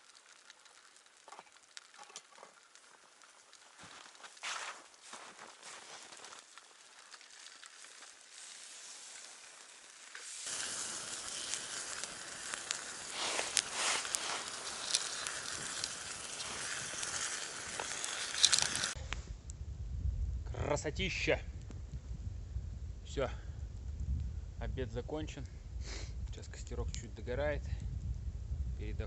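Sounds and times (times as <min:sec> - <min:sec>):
campfire crackling and popping: 0:00.0 - 0:29.0.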